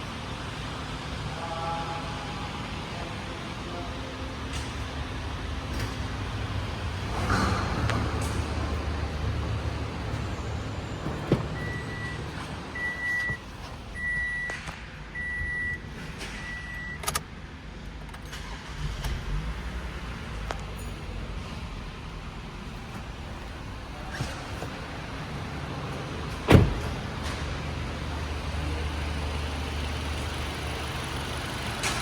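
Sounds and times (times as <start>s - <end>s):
car engine rumbling: 0.0s - 32.0s
high beeps: 12.8s - 13.4s.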